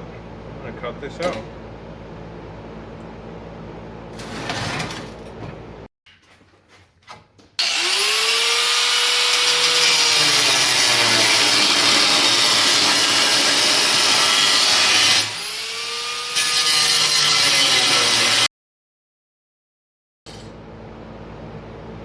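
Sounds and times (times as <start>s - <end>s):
angle grinder cutting steel: 7.6s - 18.5s.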